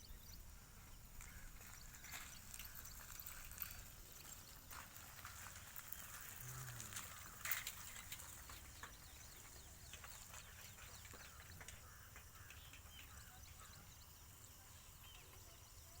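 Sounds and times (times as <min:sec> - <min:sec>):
faint bird chirps: 0:08.7 - 0:16.0.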